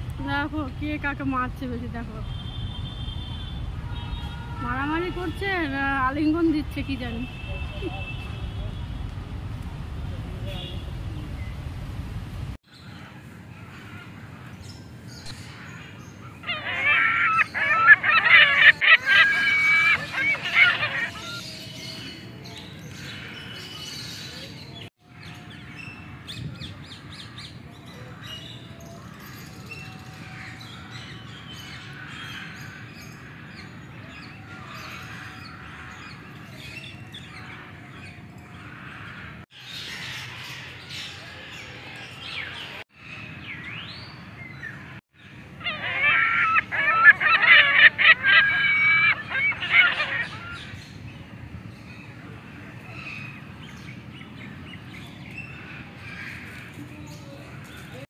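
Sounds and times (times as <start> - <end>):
birds chirping: 12.6 - 58.0
shrill rapid bird chattering: 16.4 - 21.4, 45.6 - 50.6.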